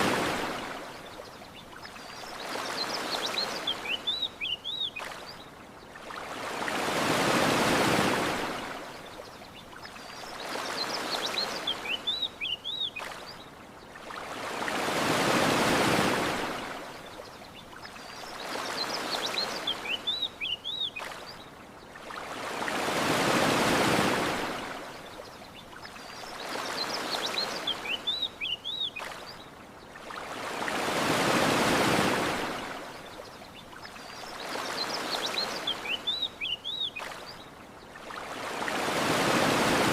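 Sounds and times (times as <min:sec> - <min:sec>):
ocean waves washing ashore: 0:00.0 - 0:39.9
small birds chirping: 0:01.0 - 0:06.0, 0:09.0 - 0:14.0, 0:17.1 - 0:22.0, 0:25.1 - 0:30.1, 0:33.0 - 0:38.2.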